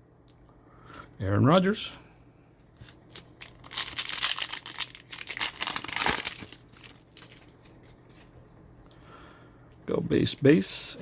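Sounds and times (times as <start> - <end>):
wrapper tearing and crinkling: 2.9 - 8.3.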